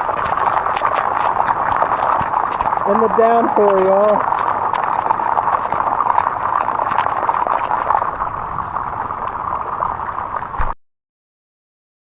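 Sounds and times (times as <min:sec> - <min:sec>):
heavy rain downpour: 0:00.0 - 0:06.2.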